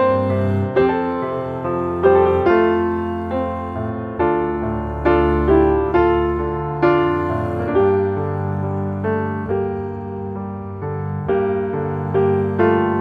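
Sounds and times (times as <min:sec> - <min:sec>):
gentle piano chords: 0:00.0 - 0:13.0.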